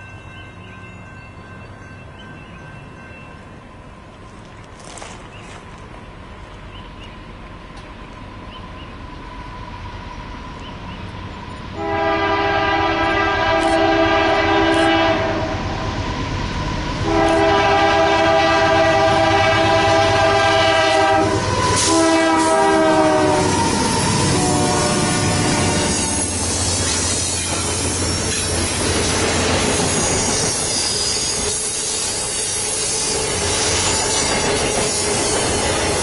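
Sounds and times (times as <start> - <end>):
train rumble: 0.0 - 36.0
locomotive air horn blasts: 11.8 - 15.8, 17.0 - 26.8.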